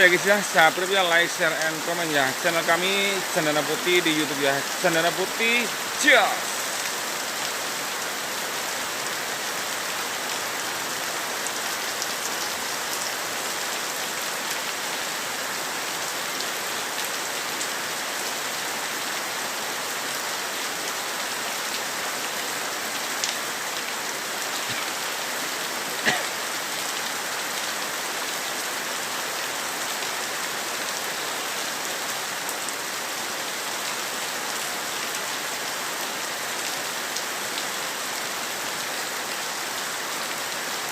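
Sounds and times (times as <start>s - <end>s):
heavy rain hissing: 0.0s - 28.8s.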